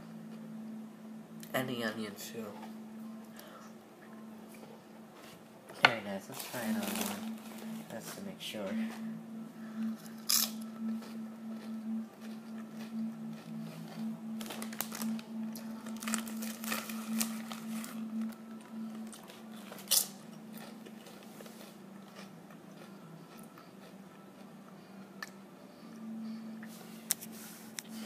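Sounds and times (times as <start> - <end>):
low hum: 0.0 - 28.0
potato chip crunching: 6.4 - 7.7, 10.2 - 18.4, 19.0 - 24.5.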